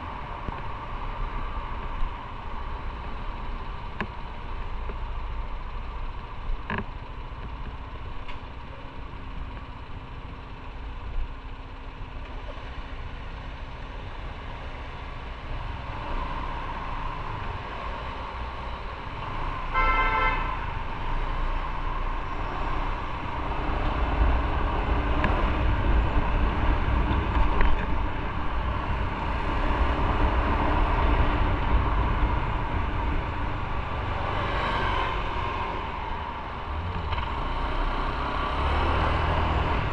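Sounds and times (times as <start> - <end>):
motorcycle engine and road noise: 0.0 - 39.9
vehicle horn: 19.7 - 20.6.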